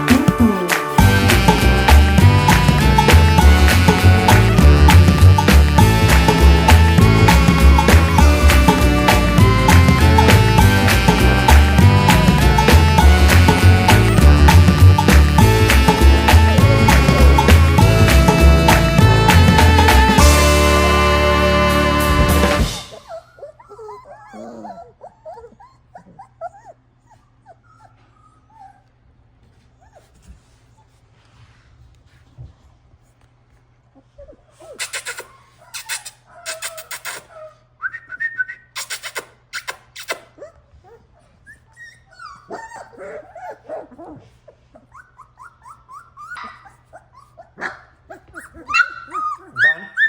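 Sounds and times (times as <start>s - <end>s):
puppies yelping: 22.8s - 28.9s, 34.3s - 37.8s, 39.6s - 50.0s
puppies whimpering and whining: 22.8s - 31.0s, 33.9s - 38.2s, 39.0s - 50.0s.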